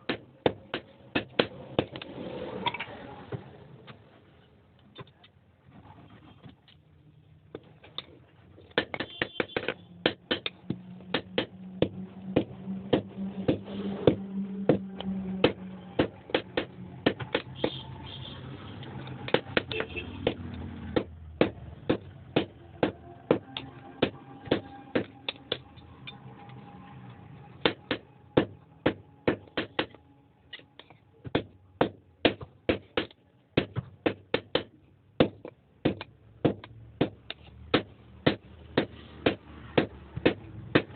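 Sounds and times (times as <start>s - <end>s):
low hum: 10.5s - 19.3s, 20.4s - 31.2s
hammer striking iron on anvil: 21.0s - 26.2s.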